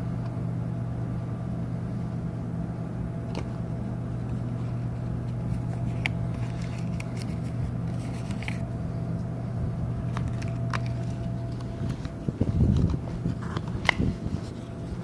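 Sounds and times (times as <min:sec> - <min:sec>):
ship machinery humming: 0:00.0 - 0:15.0.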